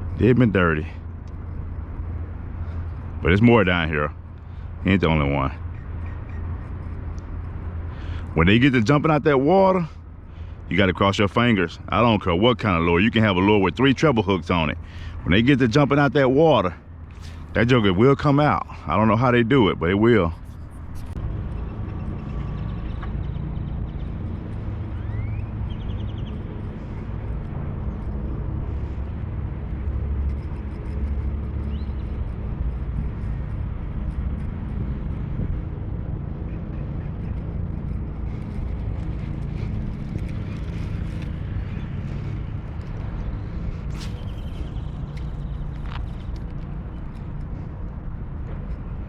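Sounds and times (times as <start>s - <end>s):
low hum: 19.6s - 49.0s.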